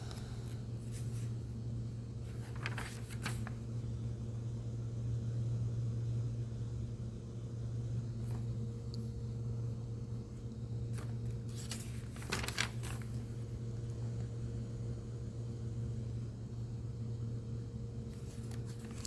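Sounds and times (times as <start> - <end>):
low machine hum: 0.0 - 19.0
faint rustles: 2.3 - 3.6, 10.9 - 13.2.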